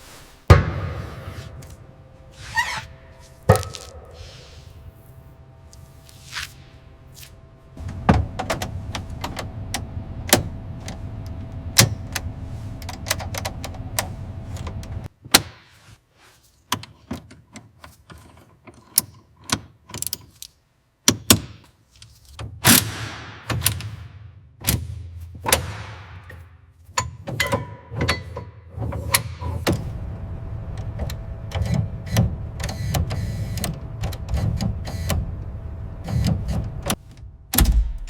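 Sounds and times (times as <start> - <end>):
low steady hum: 0.0 - 15.1, 29.2 - 38.0
mechanical knocks: 36.0 - 38.0.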